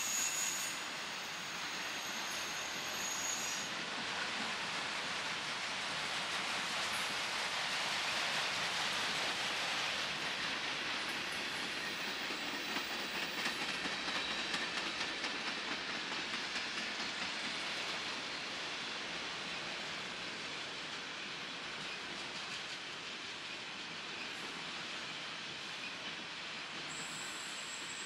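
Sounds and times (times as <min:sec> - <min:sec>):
train cars rolling with rushing hiss: 0:00.0 - 0:28.0.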